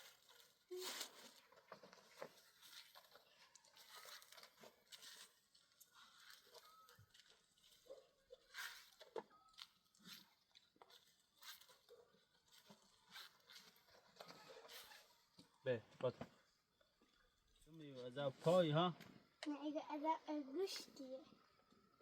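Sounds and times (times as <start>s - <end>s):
people chewing food: 0.0s - 15.6s.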